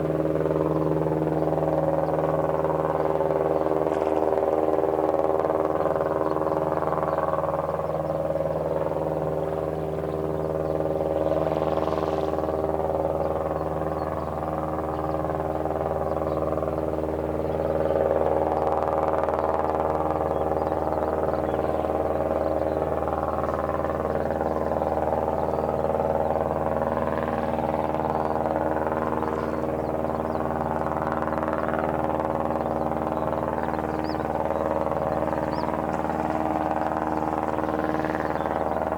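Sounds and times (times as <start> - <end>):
steady low mechanical hum: 0.0 - 38.9.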